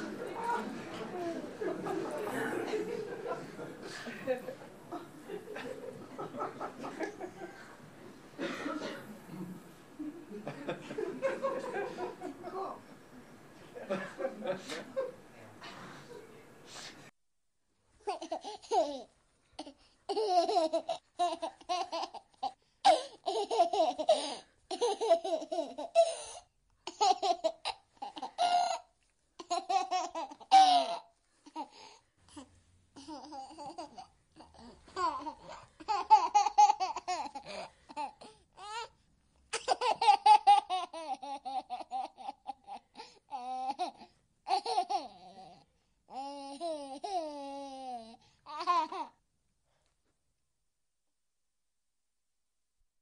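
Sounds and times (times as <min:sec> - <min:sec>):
baby giggling: 0:18.0 - 0:26.2, 0:26.9 - 0:31.8, 0:33.0 - 0:38.9, 0:39.5 - 0:49.1.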